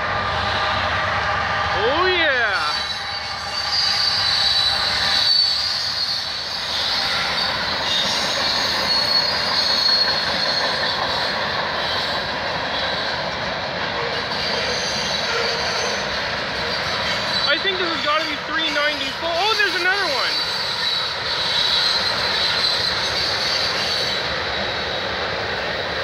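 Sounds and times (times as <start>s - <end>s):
freight train wheels rumbling: 0.0s - 26.0s
high-pitched wheel squeal: 2.6s - 13.1s, 14.0s - 24.9s.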